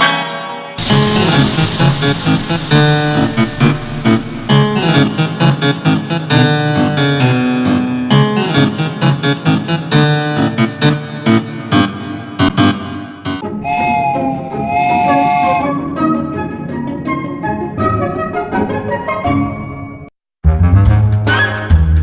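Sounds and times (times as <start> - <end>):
upbeat keyboard music with beat: 0.8 - 22.0.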